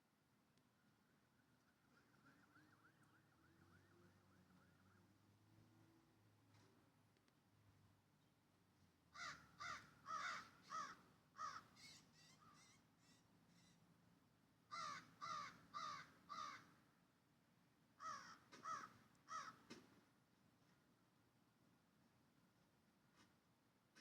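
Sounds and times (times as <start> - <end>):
bird calling: 9.2 - 13.8.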